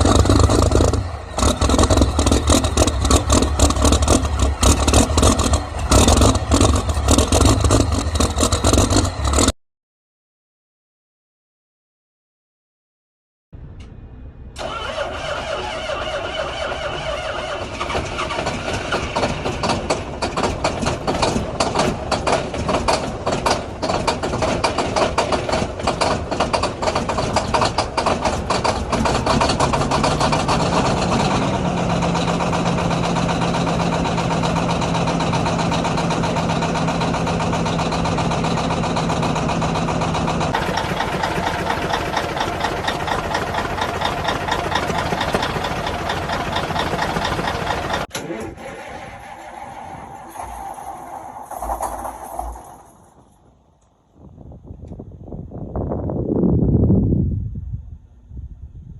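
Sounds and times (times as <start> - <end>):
diesel truck engine idling: 0.0 - 9.5, 14.6 - 48.1.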